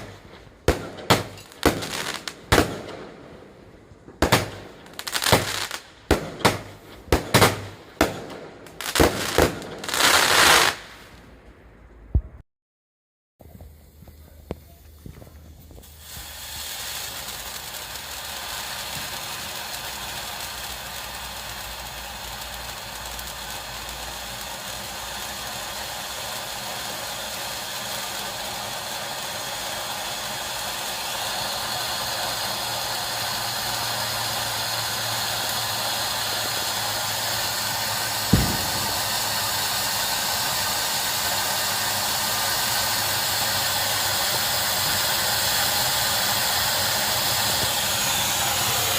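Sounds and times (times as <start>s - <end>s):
firework fountain hissing: 0.0s - 11.4s, 13.4s - 48.9s
sharp thump: 38.3s - 39.1s.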